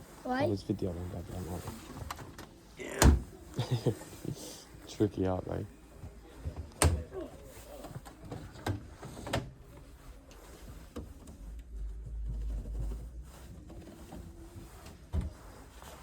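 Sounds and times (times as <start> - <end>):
washing machine door clicks and knocks: 6.7 - 7.1.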